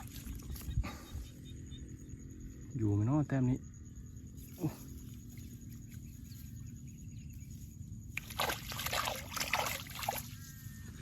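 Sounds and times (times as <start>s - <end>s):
water splashing and sloshing: 0.0s - 0.8s, 8.1s - 10.5s.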